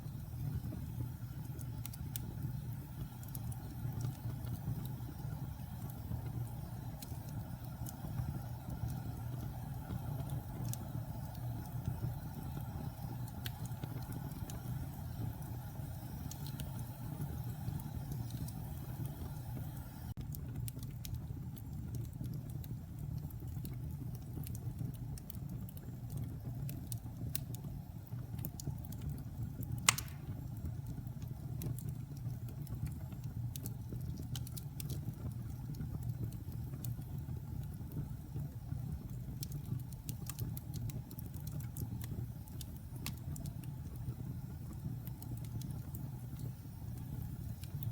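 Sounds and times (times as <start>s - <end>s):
fire crackling: 0.0s - 47.9s
fire rumbling: 0.0s - 47.9s
sharp pop of burning log: 29.8s - 30.4s.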